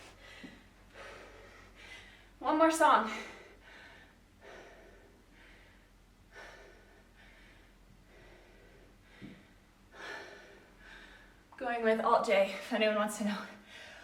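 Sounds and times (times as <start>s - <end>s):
heavy breathing: 0.0s - 2.4s, 3.1s - 11.5s.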